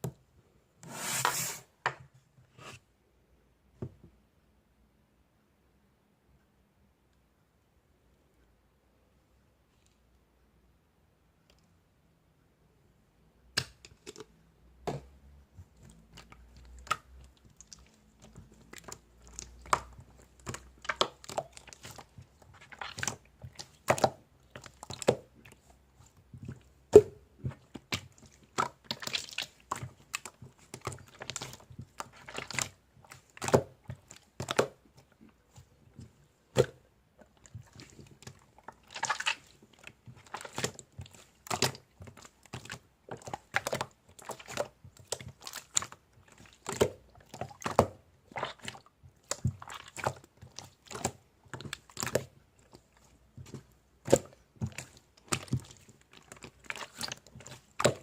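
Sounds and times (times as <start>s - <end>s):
close-up crunching and crackling: 15.8s - 58.0s.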